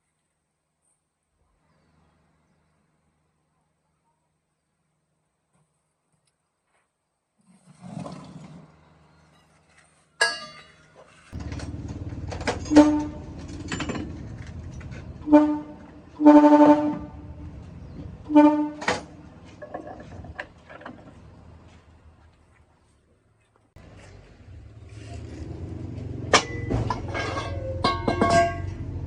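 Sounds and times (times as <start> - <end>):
engine rumble: 7.7 - 29.0
vehicle horn honking: 12.6 - 13.4, 15.2 - 17.4, 18.3 - 19.0.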